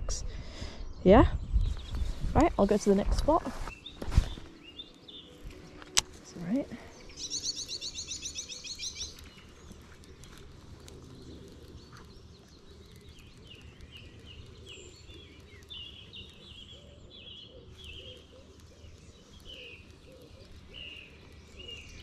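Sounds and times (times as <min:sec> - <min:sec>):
small bird chirping: 0:00.9 - 0:05.6, 0:06.3 - 0:22.0.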